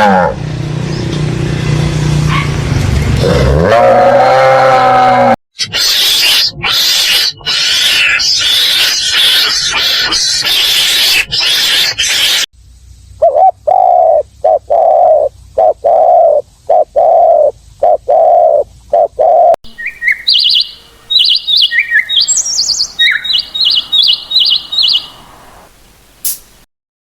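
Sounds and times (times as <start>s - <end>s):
repeated medium-pitched call: 19.7s - 25.4s
bird chirping and tweeting: 19.7s - 26.4s
single click: 26.2s - 26.5s.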